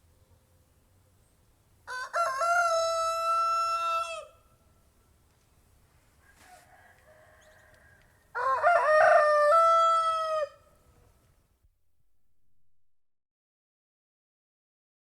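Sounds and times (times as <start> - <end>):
rooster crowing: 1.9 - 4.4, 6.2 - 10.8.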